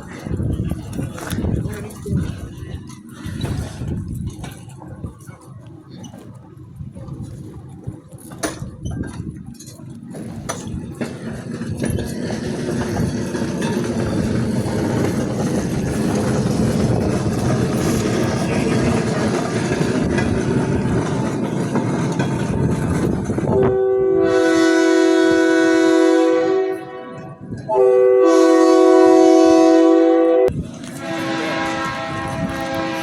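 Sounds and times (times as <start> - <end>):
train rumbling along rails: 0.0 - 33.0
train air horn blasts: 23.5 - 33.0.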